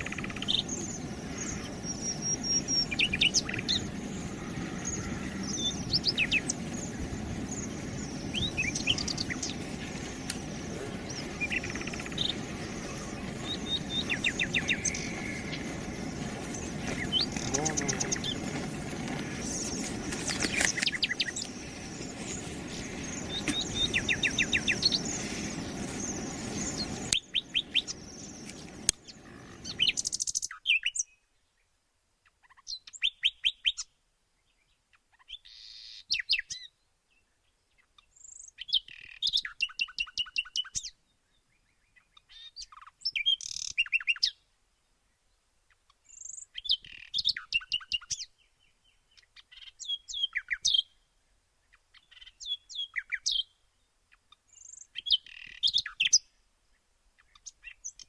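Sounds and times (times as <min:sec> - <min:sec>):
steady background haze: 0:00.0 - 0:30.0
small birds chirping: 0:00.0 - 0:58.0.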